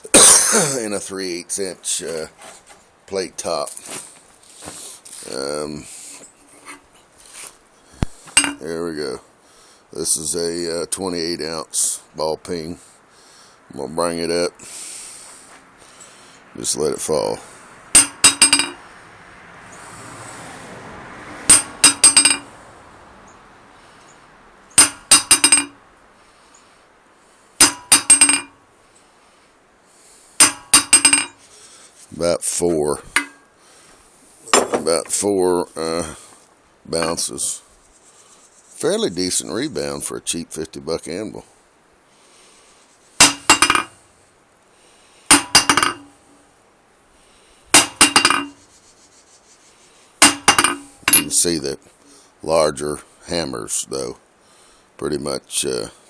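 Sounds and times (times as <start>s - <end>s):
hammer bouncing on anvil: 8.3s - 8.6s, 18.0s - 18.8s, 21.5s - 22.5s, 24.8s - 25.8s, 27.6s - 28.6s, 30.4s - 31.4s, 33.1s - 33.4s, 43.2s - 43.9s, 45.3s - 46.2s, 47.8s - 48.6s, 50.2s - 51.4s
ringing clinks: 8.3s - 8.6s, 18.0s - 18.8s, 21.5s - 22.5s, 24.8s - 25.8s, 27.6s - 28.6s, 30.4s - 31.4s, 43.2s - 43.9s, 45.3s - 46.3s, 47.8s - 48.6s, 50.2s - 51.4s.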